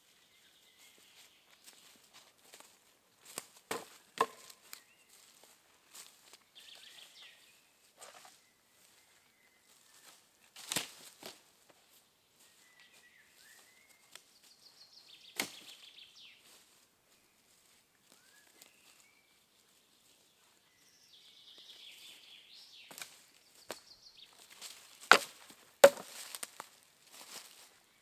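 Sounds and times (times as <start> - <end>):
sharp knocks: 25.8 - 26.0.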